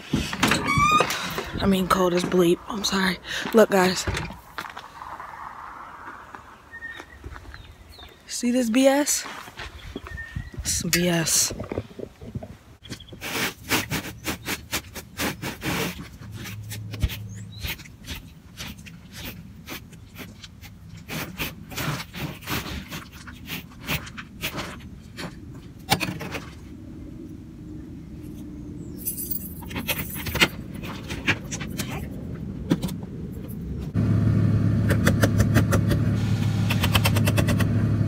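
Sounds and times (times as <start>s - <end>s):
scraping snow and ice: 1.1s - 12.0s, 13.2s - 25.6s.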